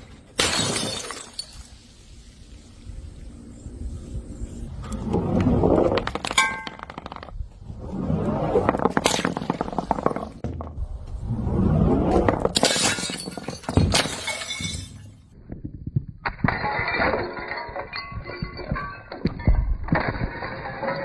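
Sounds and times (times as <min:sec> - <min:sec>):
clinking glass shards: 0:00.4 - 0:01.8
glass bottles smashing: 0:00.4 - 0:02.2, 0:06.1 - 0:07.2, 0:12.5 - 0:15.2.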